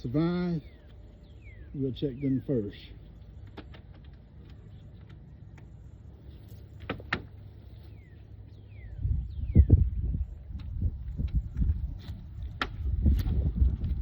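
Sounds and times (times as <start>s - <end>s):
low steady rumble: 0.0s - 14.0s
bird whistling: 0.6s - 2.6s
clicks and knocks of wooden beehive: 3.3s - 5.8s, 6.7s - 7.4s, 10.6s - 13.5s.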